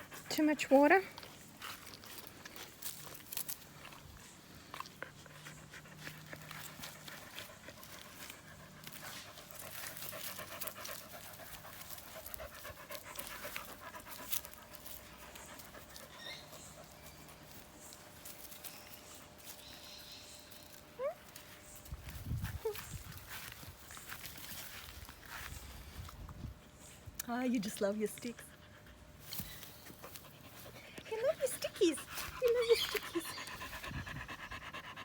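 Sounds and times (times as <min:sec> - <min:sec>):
dog panting rapidly: 0:04.8 - 0:17.4, 0:28.1 - 0:35.0.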